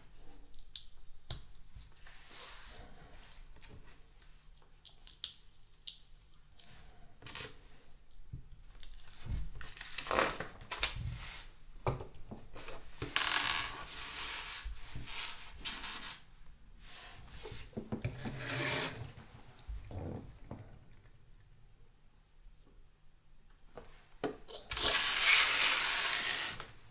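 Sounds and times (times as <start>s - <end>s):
plastic scraping on surface: 18.0s - 19.2s, 24.7s - 26.8s.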